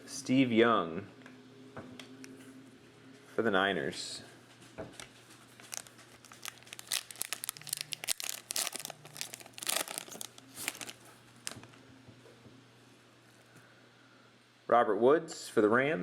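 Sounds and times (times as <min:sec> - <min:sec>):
plastic wrapper crinkling and tearing: 0:05.5 - 0:11.8.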